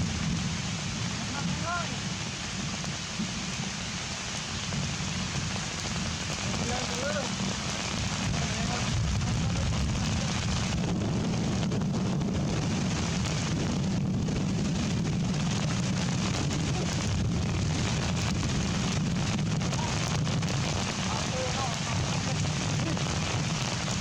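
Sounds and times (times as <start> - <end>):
heavy rain: 0.0 - 24.0
low rumble: 4.8 - 24.0.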